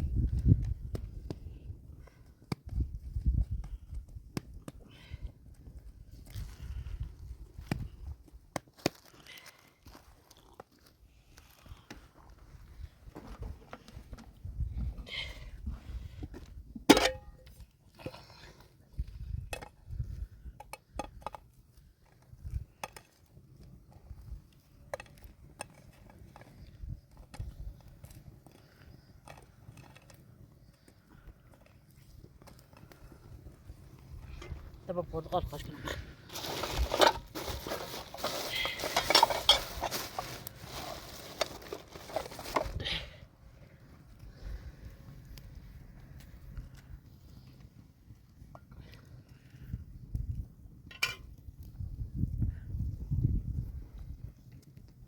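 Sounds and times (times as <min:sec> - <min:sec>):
objects clattering and knocking: 0:35.8 - 0:42.9.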